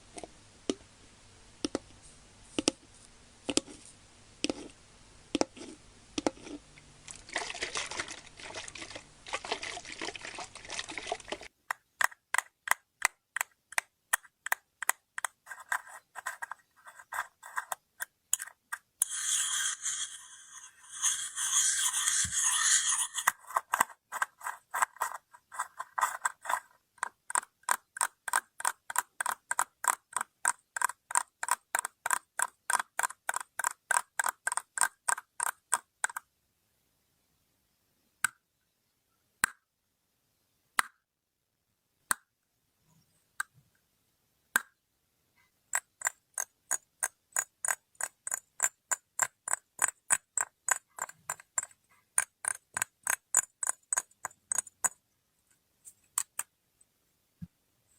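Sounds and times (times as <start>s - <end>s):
clicks on a hard object: 11.7s - 16.6s, 45.7s - 55.0s.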